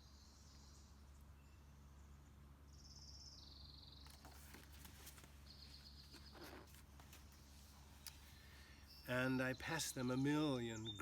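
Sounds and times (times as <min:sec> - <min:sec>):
quiet low hum: 0:00.0 - 0:11.0
soft clicks and rustles: 0:04.0 - 0:08.4.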